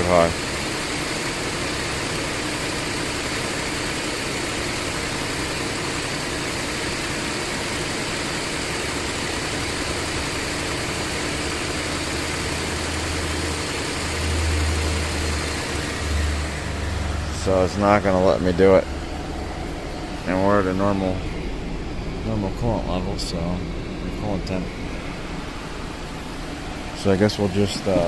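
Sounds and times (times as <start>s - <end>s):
car engine at raised idle: 0.0s - 28.0s
deep low hum: 12.4s - 27.9s.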